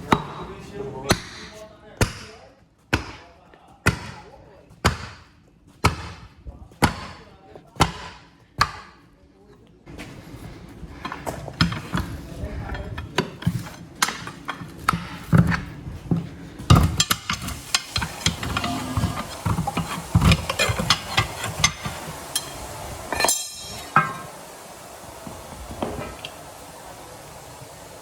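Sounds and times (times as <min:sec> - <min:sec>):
hand tools knocking and scraping: 0:10.9 - 0:24.4.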